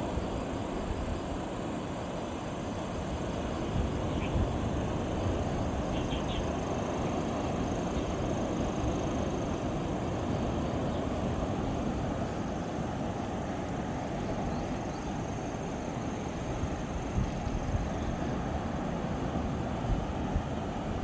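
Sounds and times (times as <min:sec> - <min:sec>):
rushing wind: 0:00.0 - 0:21.0
sea surf: 0:00.0 - 0:21.0
wind buffeting microphone: 0:16.5 - 0:21.0.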